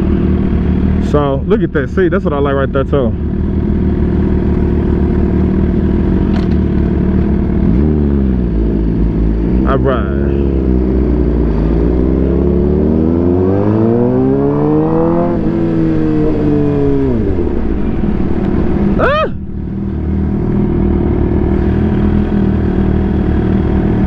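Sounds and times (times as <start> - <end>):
motorcycle engines idling: 0.0 - 7.7
engine revving: 0.0 - 24.0.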